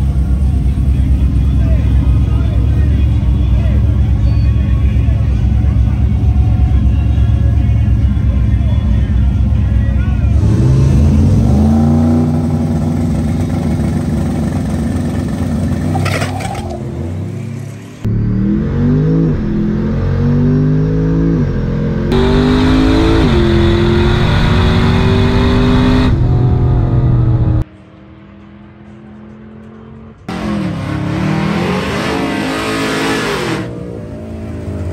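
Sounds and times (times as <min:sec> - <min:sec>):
truck engines at full throttle: 0:00.0 - 0:34.9.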